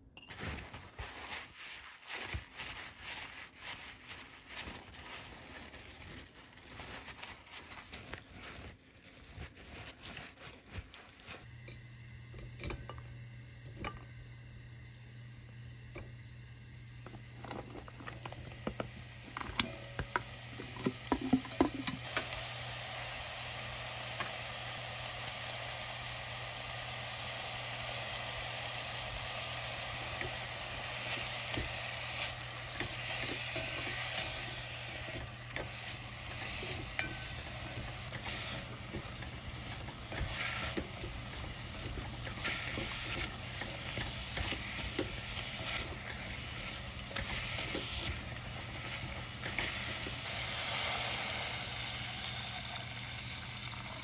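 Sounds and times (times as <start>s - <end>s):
food sizzling in a pot: 11.4s - 54.0s
spatula scraping a pot: 30.2s - 50.3s.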